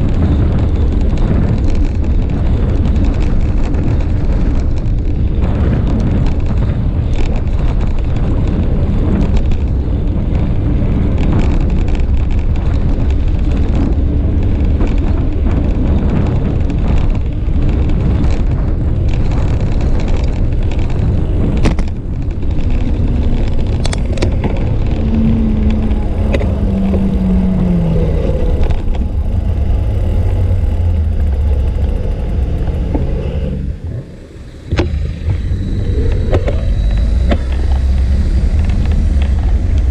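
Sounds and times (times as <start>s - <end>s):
road traffic: 0.0s - 39.9s
wind buffeting microphone: 0.0s - 39.9s
passing vehicle engine: 22.3s - 39.9s.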